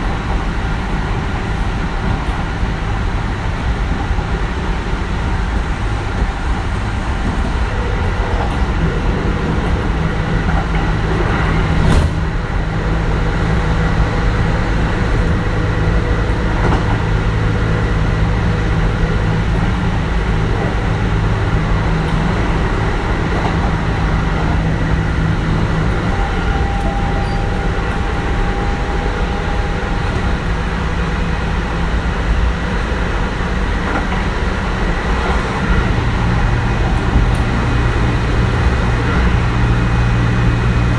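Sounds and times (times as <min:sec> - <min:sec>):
train wheels rumbling on rails: 0:00.0 - 0:40.9
faint steady tones: 0:25.6 - 0:32.0.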